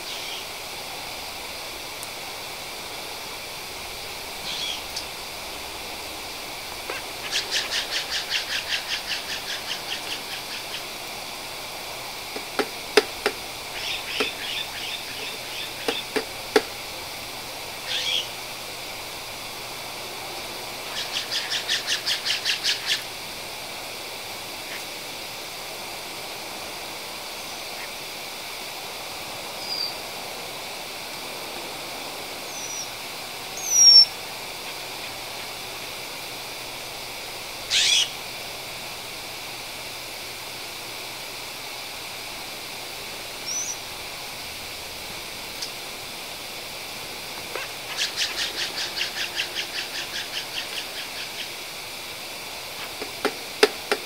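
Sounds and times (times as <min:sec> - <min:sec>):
bird chattering calls: 0:00.0 - 0:00.5, 0:04.4 - 0:05.0, 0:06.8 - 0:11.0, 0:12.4 - 0:16.8, 0:17.8 - 0:18.4, 0:20.8 - 0:23.1, 0:33.6 - 0:34.2, 0:37.7 - 0:38.2, 0:43.4 - 0:43.9, 0:47.5 - 0:51.6.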